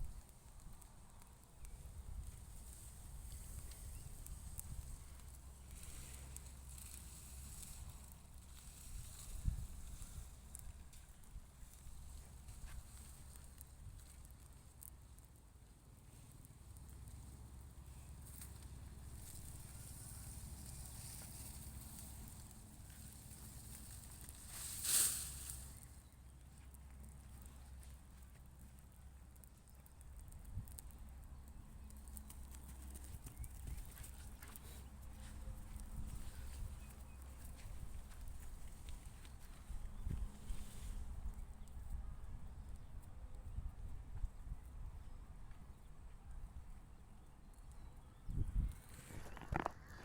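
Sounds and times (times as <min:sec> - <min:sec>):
faint rustling and crunching: 0:00.0 - 0:50.0.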